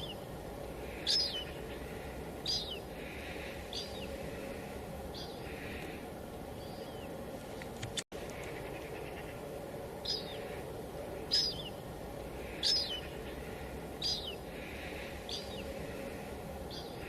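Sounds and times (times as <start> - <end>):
bird short high calls: 12.4 - 15.7.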